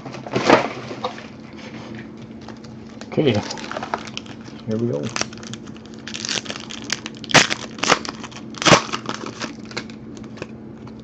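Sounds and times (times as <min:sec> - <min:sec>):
wrapper being torn open: 0:02.4 - 0:10.5.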